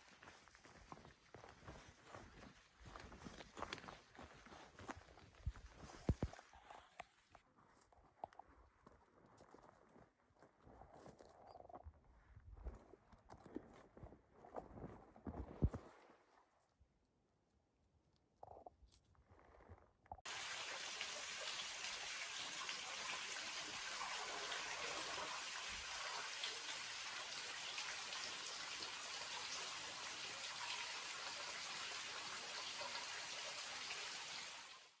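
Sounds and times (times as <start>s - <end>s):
rush of running water: 20.3s - 35.0s.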